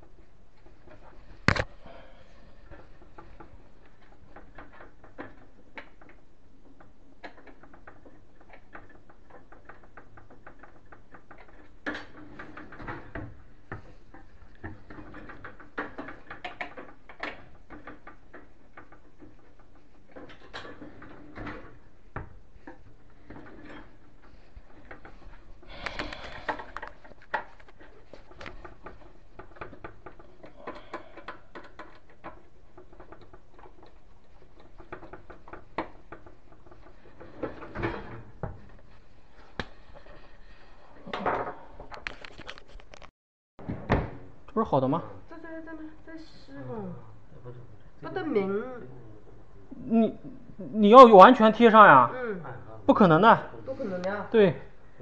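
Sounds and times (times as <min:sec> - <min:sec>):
cabinet hardware clicks and rattles: 0:02.5 - 0:40.3.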